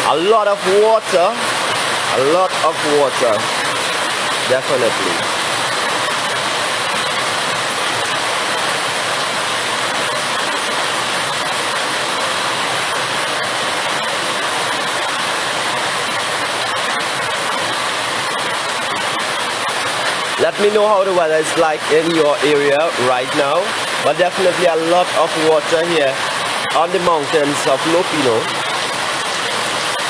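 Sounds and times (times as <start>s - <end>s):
floodwater rushing: 0.0s - 30.0s.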